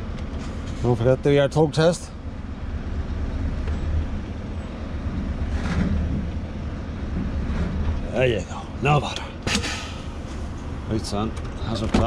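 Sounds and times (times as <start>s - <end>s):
truck engine rumbling at low revs: 0.0s - 12.0s
short air hiss: 9.5s - 10.4s.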